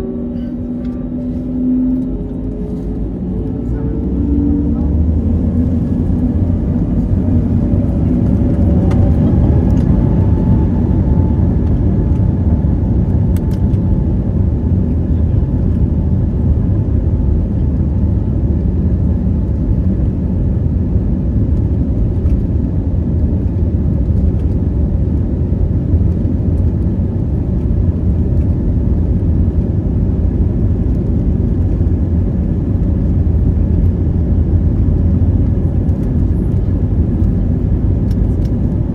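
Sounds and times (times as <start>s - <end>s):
faint rising whine: 0.0s - 13.0s
airplane cabin rumble and hiss: 0.0s - 38.9s.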